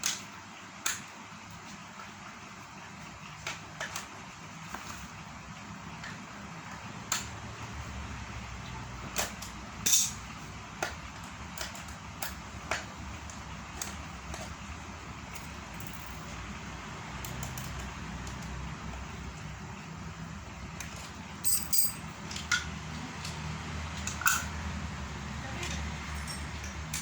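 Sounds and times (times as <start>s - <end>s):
metal parts clicking and knocking: 9.2s - 10.2s, 15.3s - 16.3s, 20.8s - 24.5s, 25.6s - 27.0s.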